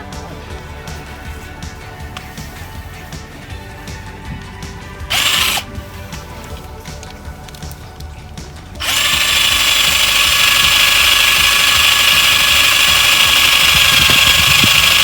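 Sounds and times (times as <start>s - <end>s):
power drill boring a hole: 5.1s - 5.8s, 8.8s - 15.0s.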